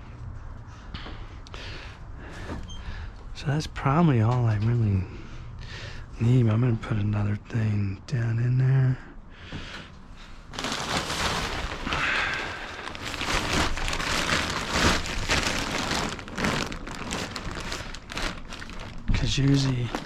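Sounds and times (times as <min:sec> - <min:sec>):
household items rustling and scraping: 0:10.5 - 0:20.0.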